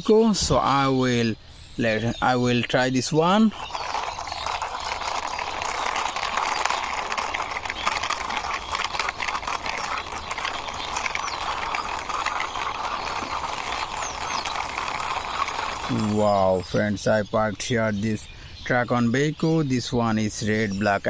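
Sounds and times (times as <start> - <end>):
toy truck wheels rolling and rattling: 2.0 - 17.1.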